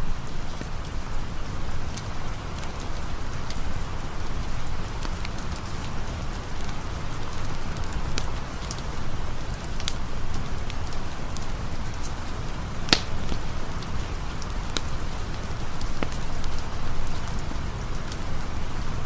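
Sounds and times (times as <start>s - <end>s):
rain falling: 0.0s - 19.0s
sharp ticks and pops: 9.7s - 13.8s.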